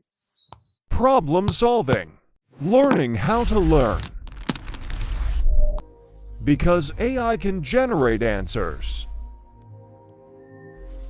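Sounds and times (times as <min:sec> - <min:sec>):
ambient synth pad music: 0:05.8 - 0:11.0.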